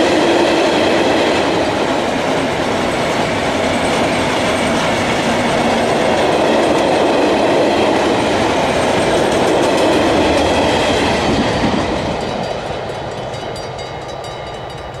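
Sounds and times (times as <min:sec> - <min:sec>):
train rumbling: 0:00.0 - 0:15.0
crossing warning bell ringing: 0:11.6 - 0:15.0.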